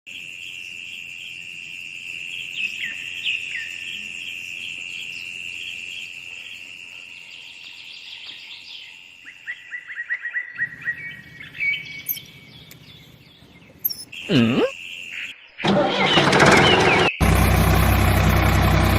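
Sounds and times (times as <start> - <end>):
high-pitched insect drone: 0.1 - 7.9
birds chirping: 7.2 - 18.8.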